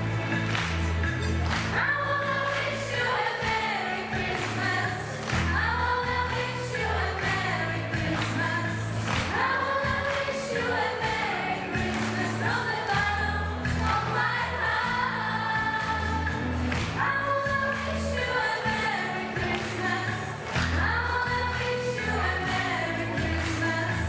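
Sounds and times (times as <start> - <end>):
instrumental backing with bass line: 0.0 - 18.1
choir singing: 1.7 - 24.0.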